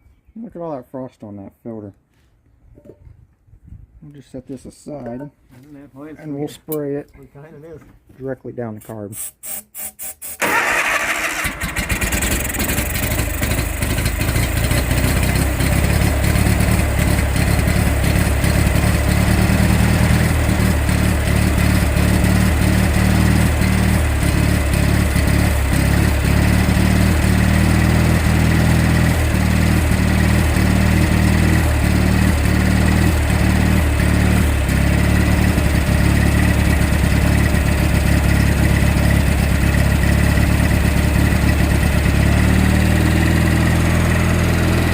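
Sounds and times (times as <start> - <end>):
lawn tractor engine starting and running: 9.5 - 44.9.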